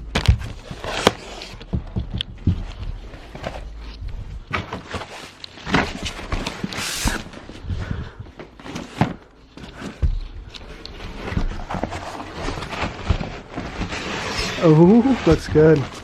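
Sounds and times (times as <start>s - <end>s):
knocks and clicks of parts: 1.6s - 3.0s
packaging rustling: 2.4s - 16.0s.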